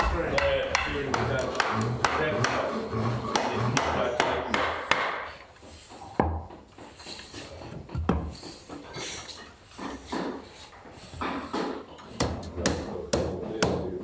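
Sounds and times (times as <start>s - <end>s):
sharp wooden knocks: 0.0s - 5.3s
scraping on wood: 0.0s - 6.2s.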